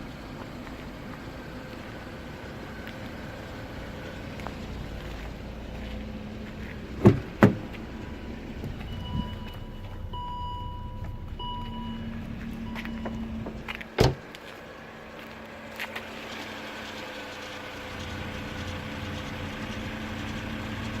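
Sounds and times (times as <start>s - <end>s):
sharp knocks: 7.0s - 7.7s.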